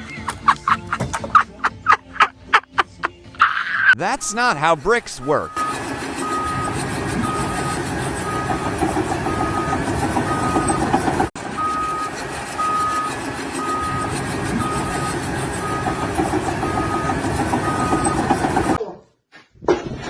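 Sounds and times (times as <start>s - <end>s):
heavy vehicle engine running: 4.0s - 18.8s
reversing alarm beeping: 5.2s - 18.8s.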